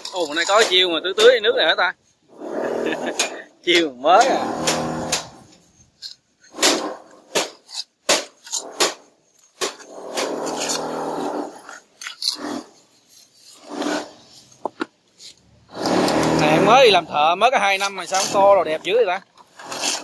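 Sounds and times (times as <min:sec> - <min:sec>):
trowel tapping and scraping: 0:00.0 - 0:01.5, 0:03.0 - 0:20.0
long rasping scrape: 0:02.3 - 0:03.4, 0:04.2 - 0:07.3, 0:08.4 - 0:14.6, 0:15.2 - 0:20.0.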